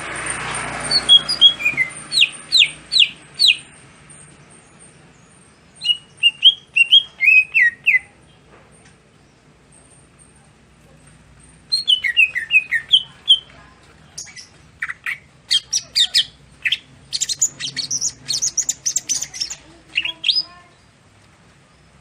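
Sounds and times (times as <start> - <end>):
bird singing: 0.2 - 21.0.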